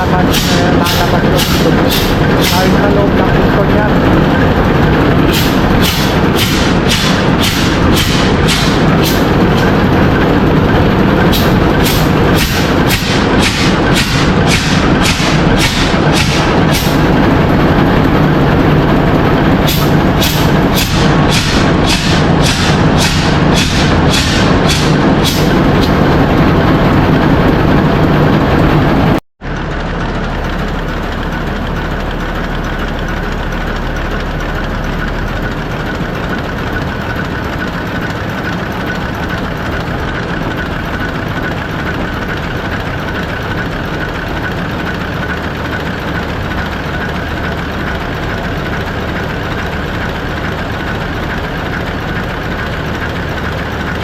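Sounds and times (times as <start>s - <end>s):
engine room machinery din: 0.0s - 54.0s.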